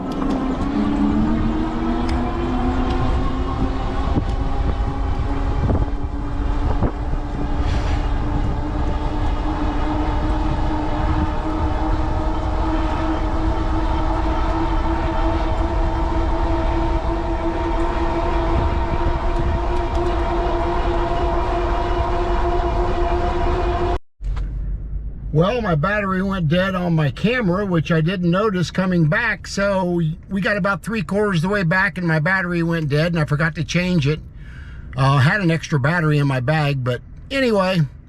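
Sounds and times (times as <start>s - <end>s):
wind rumbling on microphone: 0.0s - 26.1s
hub motor whine: 0.0s - 27.6s.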